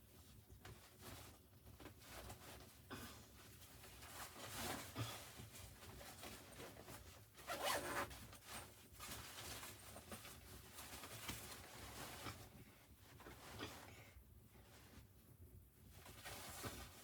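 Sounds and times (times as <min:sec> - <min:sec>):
zipper being pulled: 0:07.5 - 0:08.1.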